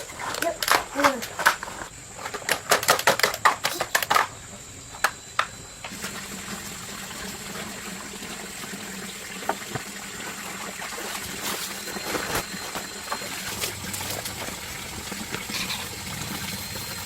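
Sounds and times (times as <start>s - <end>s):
water trickling: 5.9s - 17.0s.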